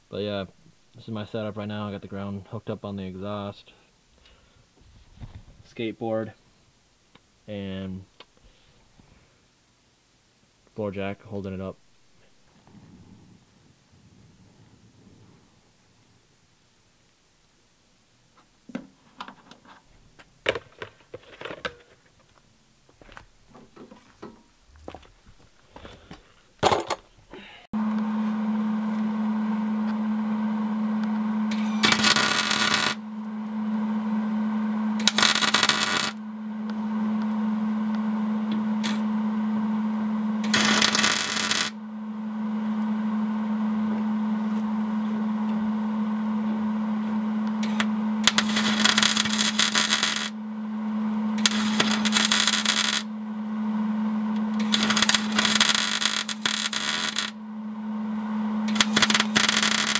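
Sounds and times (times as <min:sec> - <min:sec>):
welder humming: 0:25.7 - 0:59.9
welding arc crackle: 0:31.5 - 0:33.0, 0:35.0 - 0:36.2, 0:38.8 - 0:39.0, 0:40.4 - 0:41.8, 0:47.6 - 0:50.4, 0:51.4 - 0:53.1, 0:54.5 - 0:57.4, 0:58.7 - 0:59.9.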